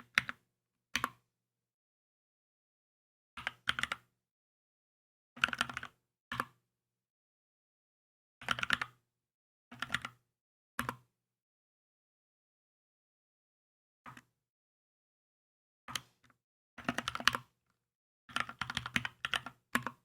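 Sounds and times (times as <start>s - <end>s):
mechanical keyboard typing: 18.3s - 20.0s.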